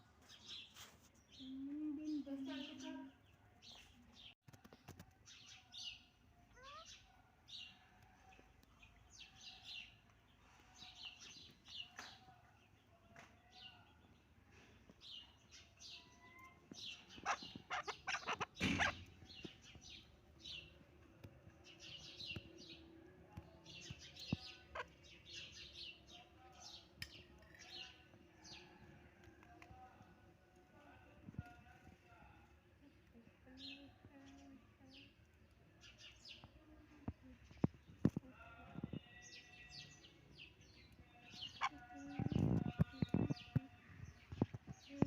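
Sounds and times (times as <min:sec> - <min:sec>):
partridges calling: 0:16.7 - 0:20.1.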